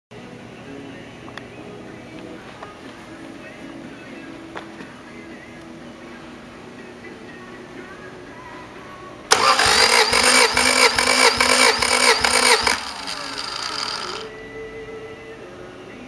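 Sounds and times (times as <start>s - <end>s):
engine cranked by starter motor: 9.3s - 14.3s.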